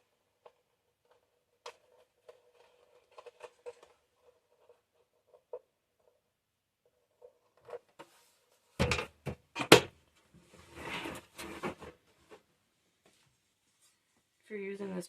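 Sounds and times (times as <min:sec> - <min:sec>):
plastic parts knocking and clacking: 0:00.3 - 0:06.2, 0:06.9 - 0:10.0
rustling scrape: 0:01.1 - 0:06.1, 0:10.4 - 0:12.4.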